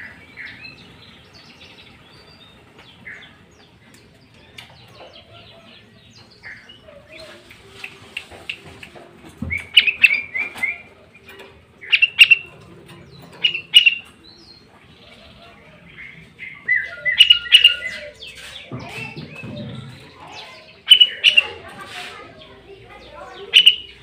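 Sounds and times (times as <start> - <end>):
bulbul singing: 9.4 - 21.7, 23.0 - 24.0.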